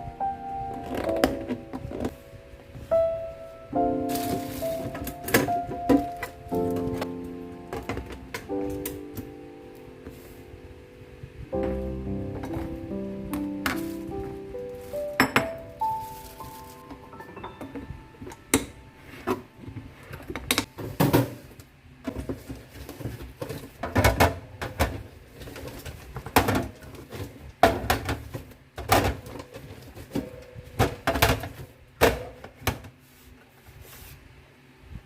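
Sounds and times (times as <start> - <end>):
food containers knocking and clattering: 7.7 - 8.5, 13.4 - 17.0, 22.0 - 33.0.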